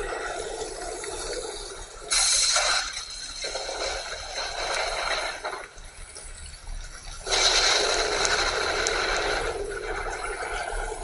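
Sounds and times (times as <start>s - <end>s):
heavy rain hissing: 7.3s - 9.9s.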